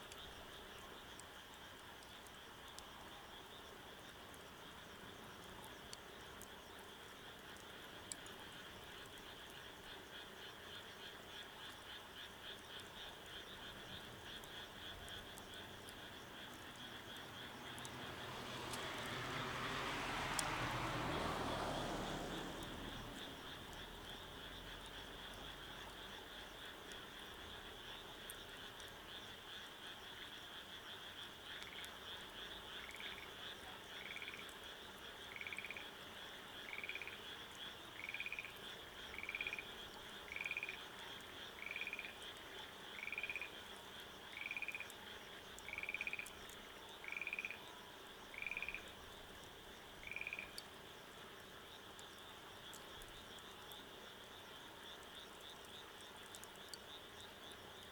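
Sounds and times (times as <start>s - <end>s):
high-pitched frog or insect chorus: 8.6s - 50.7s
frog calling: 35.3s - 35.9s, 36.7s - 37.2s, 38.0s - 40.8s, 41.5s - 42.2s, 43.0s - 43.6s, 44.3s - 44.9s, 45.6s - 46.4s, 47.0s - 47.6s, 48.3s - 48.9s, 50.0s - 50.6s.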